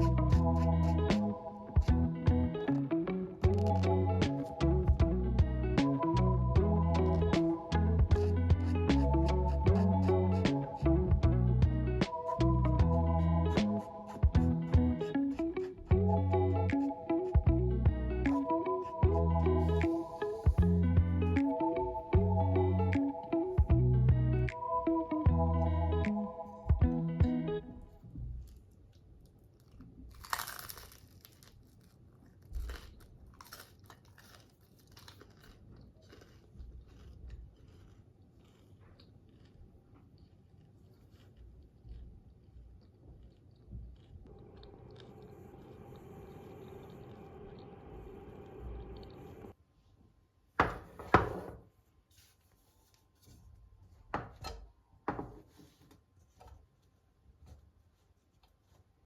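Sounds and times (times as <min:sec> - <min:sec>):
crunching and clicking: 0:28.3 - 0:45.9.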